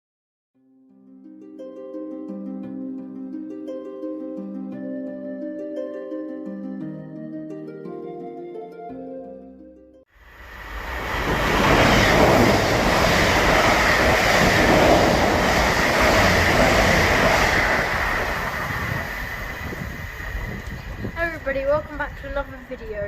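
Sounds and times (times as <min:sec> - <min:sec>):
faint high whine: 0:10.2 - 0:14.7
train wheels on rails: 0:10.2 - 0:23.0.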